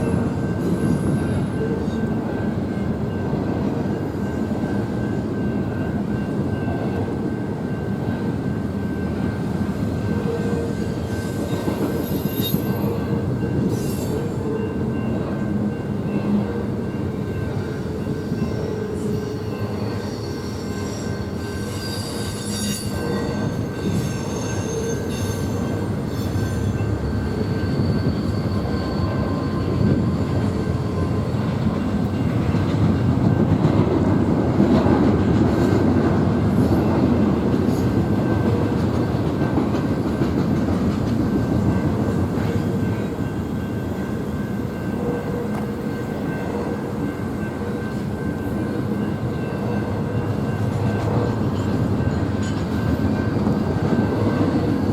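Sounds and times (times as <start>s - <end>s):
train wheels rumbling: 0.0s - 54.9s
high wheel squeal: 18.2s - 31.2s.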